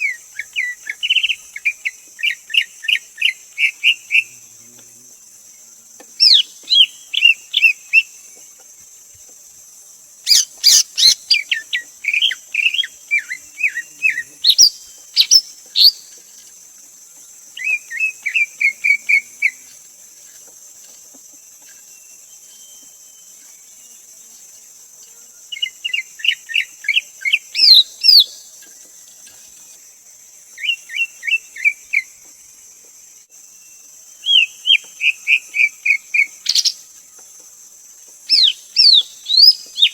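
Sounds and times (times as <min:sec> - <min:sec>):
steady high hiss: 0:00.0 - 0:39.9
bird whistled chirps: 0:14.5 - 0:16.0, 0:34.2 - 0:36.8, 0:38.3 - 0:39.9.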